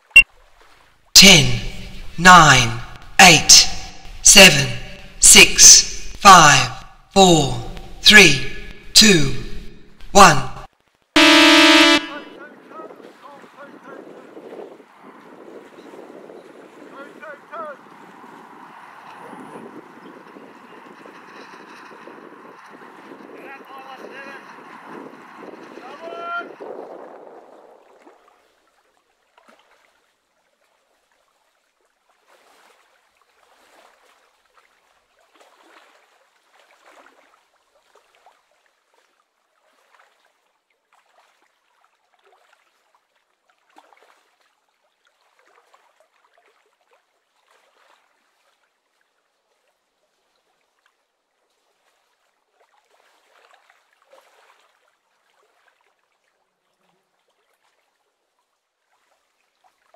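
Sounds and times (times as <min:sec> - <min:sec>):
faint water lapping: 0:12.6 - 0:59.9.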